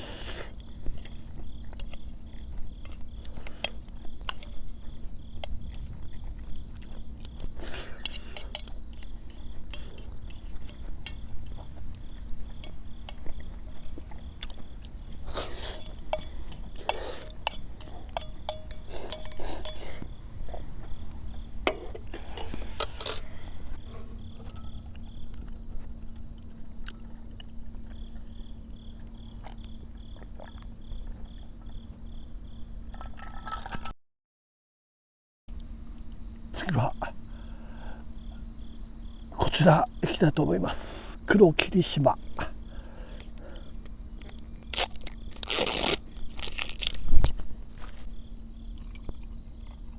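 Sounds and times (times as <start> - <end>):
crickets trilling: 0.0 - 33.8, 35.5 - 49.9
tableware clinking: 15.6 - 20.0.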